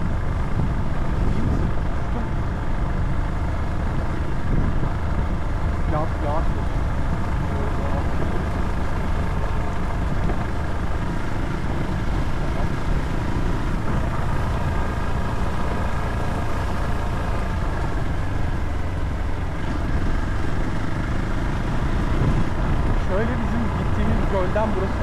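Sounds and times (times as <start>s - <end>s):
motorcycle engine: 0.0s - 25.0s
wind rushing over microphone: 0.0s - 25.0s.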